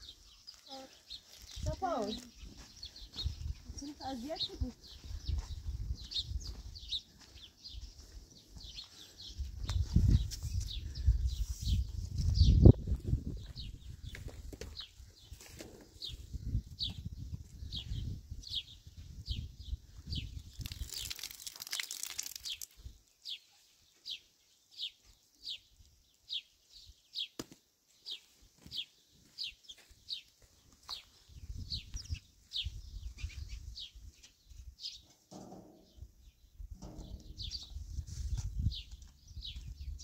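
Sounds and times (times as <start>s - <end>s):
bird chirping: 28.0s - 40.0s.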